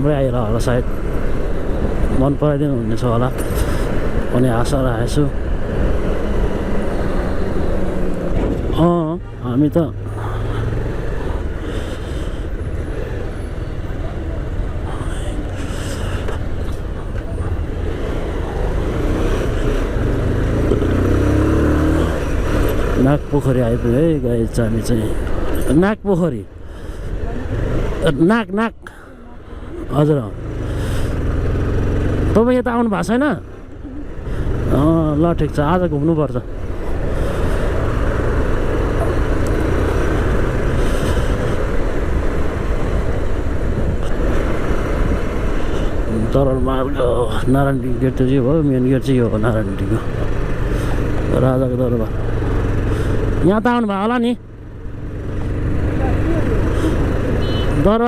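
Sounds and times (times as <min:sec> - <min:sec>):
wind and road noise: 0:00.0 - 0:58.0
motorcycle engine running: 0:49.3 - 0:58.0.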